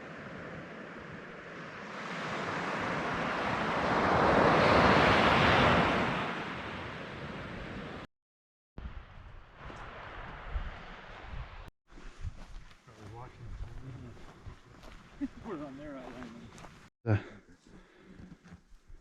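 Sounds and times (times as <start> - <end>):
ocean wave breaking: 0.0 - 8.1.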